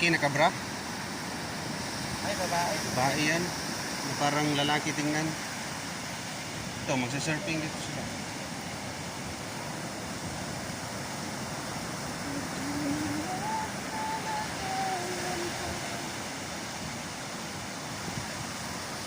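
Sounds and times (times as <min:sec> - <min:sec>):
ocean surf rushing: 0:00.0 - 0:19.0
wind on microphone: 0:05.4 - 0:19.0.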